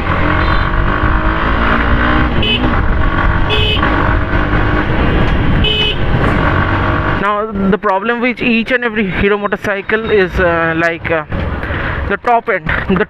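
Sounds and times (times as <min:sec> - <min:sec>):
wind rumble: 0:00.0 - 0:07.2
motorcycle engine accelerating: 0:00.0 - 0:07.4.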